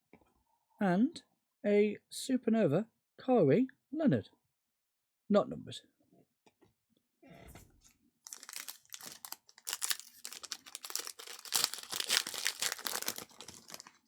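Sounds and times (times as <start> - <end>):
wrapper tearing and crinkling: 8.3 - 14.0.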